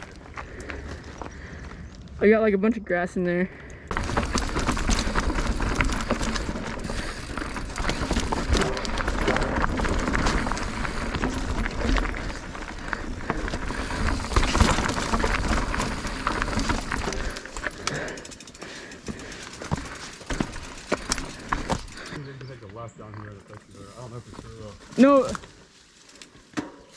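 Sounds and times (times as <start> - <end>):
bike chain and frame rattling: 3.9 - 22.2
loud bike jolt: 3.9 - 22.2
bike tyres crunching over rock: 3.9 - 22.8, 23.7 - 26.0.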